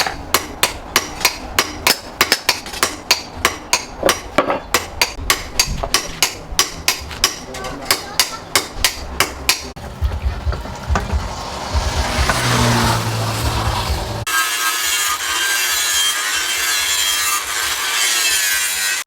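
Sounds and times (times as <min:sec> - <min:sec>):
hammer striking steel on anvil: 0:00.0 - 0:09.8.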